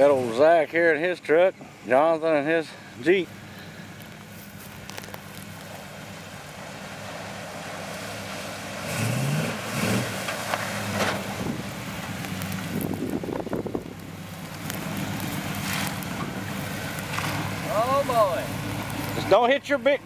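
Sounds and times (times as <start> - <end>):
off-road vehicle engine revving: 5.3 - 20.0.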